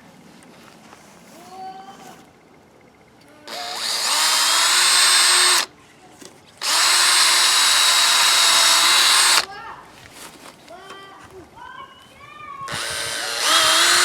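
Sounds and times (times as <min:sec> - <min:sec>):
power drill drilling into wood: 0:03.5 - 0:05.7, 0:06.6 - 0:09.5, 0:12.7 - 0:14.0.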